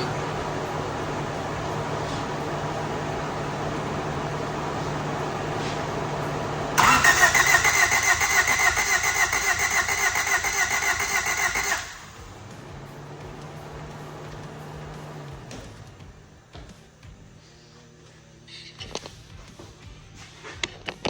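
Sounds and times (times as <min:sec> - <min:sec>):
car starter cranking engine: 0:00.0 - 0:16.3
fan hum: 0:00.0 - 0:20.6.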